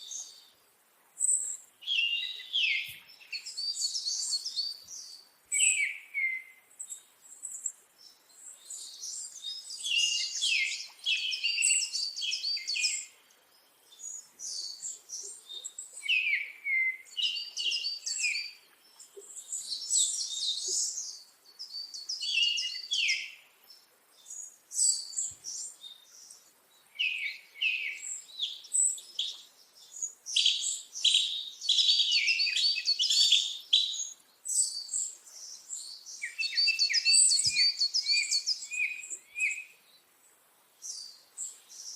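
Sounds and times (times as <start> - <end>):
birds chirping and singing: 1.3 - 6.5, 8.0 - 13.2, 27.0 - 39.8.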